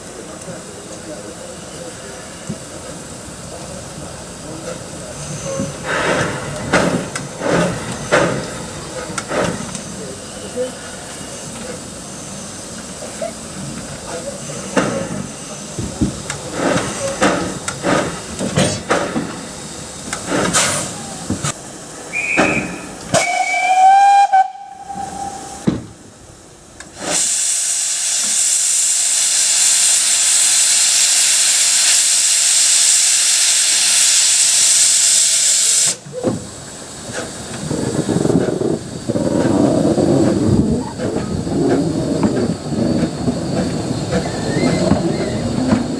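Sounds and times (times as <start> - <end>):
steam hissing: 0.0 - 45.9
steam locomotive chuffing: 0.0 - 45.9
steam whistle blast: 22.1 - 25.7.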